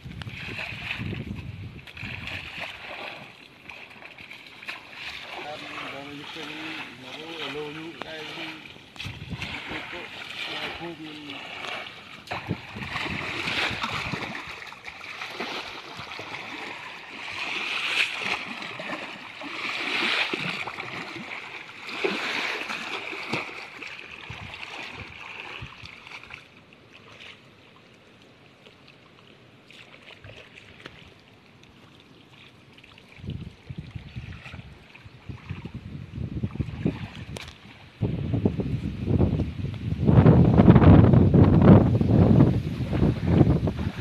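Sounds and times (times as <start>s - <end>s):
water sloshing and splashing: 0.0s - 38.2s.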